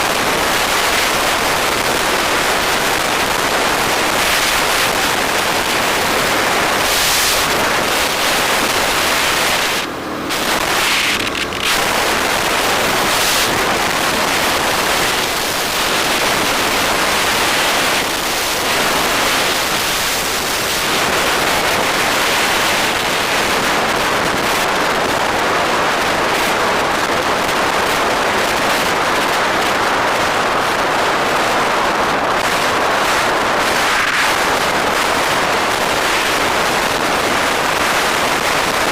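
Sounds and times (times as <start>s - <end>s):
road and traffic noise: 0.0s - 38.9s
wind rushing over microphone: 0.0s - 38.9s.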